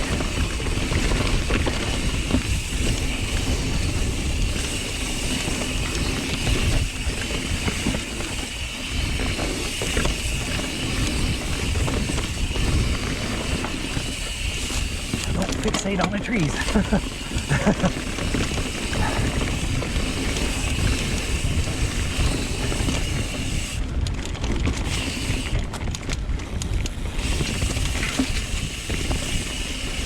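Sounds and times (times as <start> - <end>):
bike chain and frame rattling: 0.0 - 30.0
bike tyres rumbling on dirt: 0.0 - 30.0
wind noise on microphone: 0.0 - 30.0.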